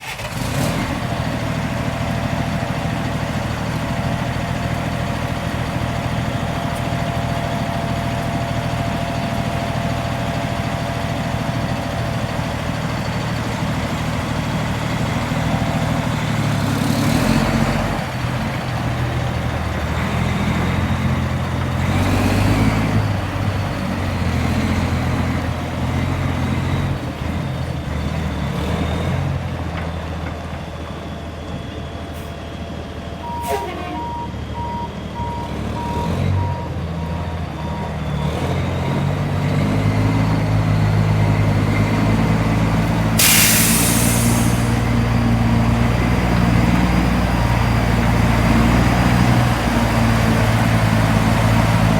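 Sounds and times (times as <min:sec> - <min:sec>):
truck engine running: 0:00.9 - 0:51.9
short bursts of hissing: 0:43.2 - 0:44.9.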